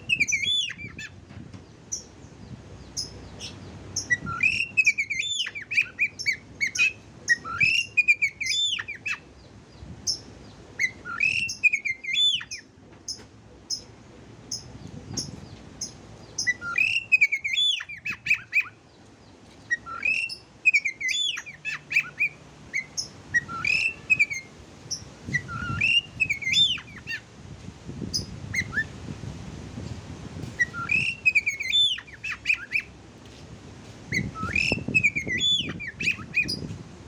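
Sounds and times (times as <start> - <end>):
bird whistled song: 0.0 - 1.2, 2.9 - 9.3, 10.1 - 13.9, 14.5 - 18.8, 19.7 - 27.2, 28.1 - 29.0, 30.6 - 32.9, 34.1 - 36.7.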